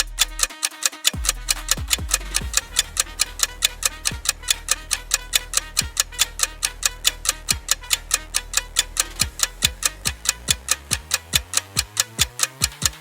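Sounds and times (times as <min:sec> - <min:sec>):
fast clock-like ticking: 0:00.0 - 0:13.0
low falling bass thuds: 0:01.2 - 0:12.4.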